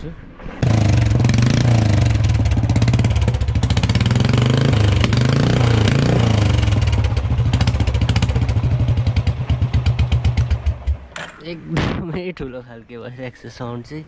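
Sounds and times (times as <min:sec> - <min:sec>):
motorcycle engine revving loudly: 0:00.6 - 0:11.1.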